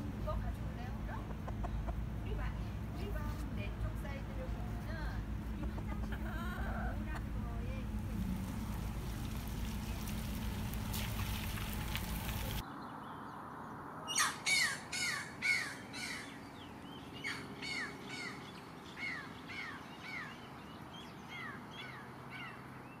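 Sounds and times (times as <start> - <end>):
steady noise rumble: 0.0 - 12.6
bird harsh calls: 14.1 - 23.0.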